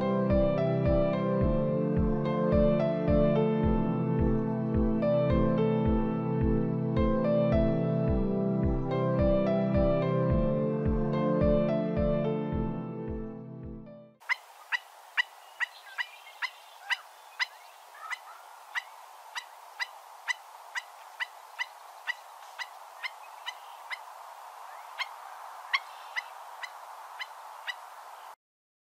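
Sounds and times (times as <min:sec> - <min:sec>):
bird yipping calls: 0:14.2 - 0:28.4.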